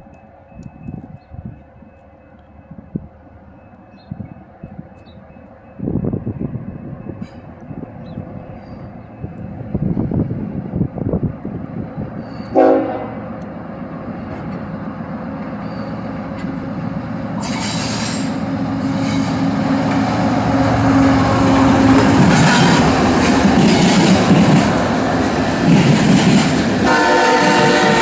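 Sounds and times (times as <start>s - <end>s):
diesel locomotive engine drone: 0.0s - 28.0s
train wheel and rail noise: 0.0s - 28.0s
train horn blast: 12.5s - 13.3s, 26.8s - 28.0s.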